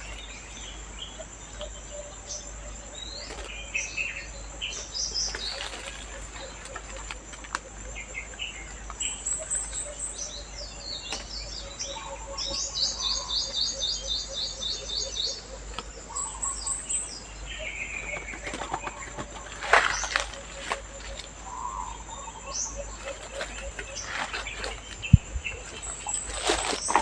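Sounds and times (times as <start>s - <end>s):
wings fluttering: 5.3s - 7.7s, 18.1s - 21.6s, 22.9s - 27.0s
lovebirds chirping: 7.9s - 27.0s.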